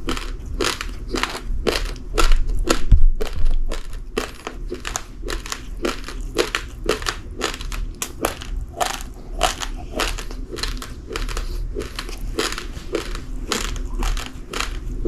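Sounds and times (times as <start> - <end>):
person chewing raw rice: 0.0 - 15.0.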